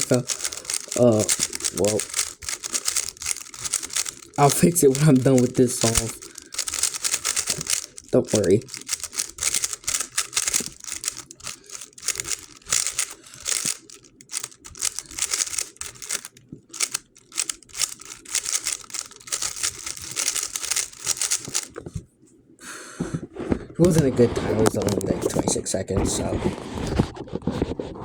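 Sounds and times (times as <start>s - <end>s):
speedcube clicking and clacking: 0.0s - 21.8s.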